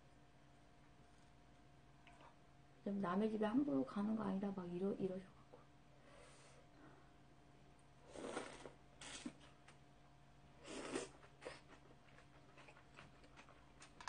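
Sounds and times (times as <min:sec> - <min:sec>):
person chewing: 0:08.1 - 0:09.8, 0:10.6 - 0:14.0.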